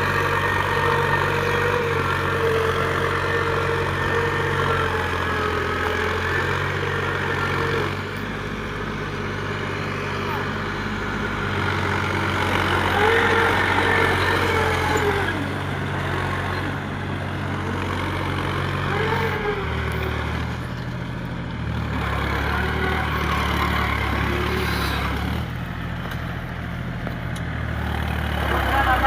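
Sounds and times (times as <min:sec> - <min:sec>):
tractor diesel engine labouring: 0:00.0 - 0:29.0.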